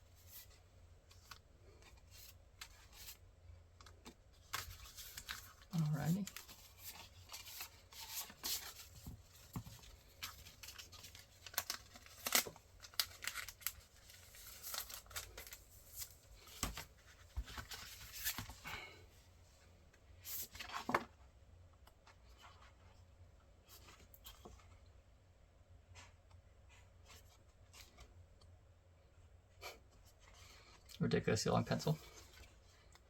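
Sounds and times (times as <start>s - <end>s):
packaging rustling and tearing: 4.4s - 16.8s.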